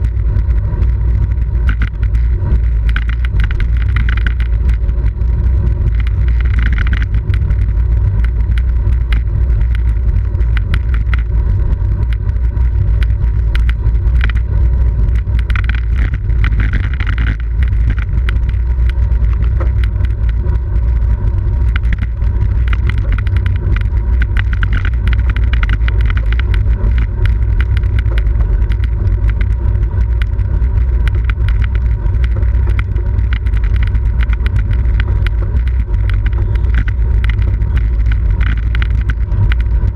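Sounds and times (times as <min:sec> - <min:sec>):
bicycle road rumble: 0:00.0 - 0:39.9
wind noise on microphone: 0:00.0 - 0:39.9.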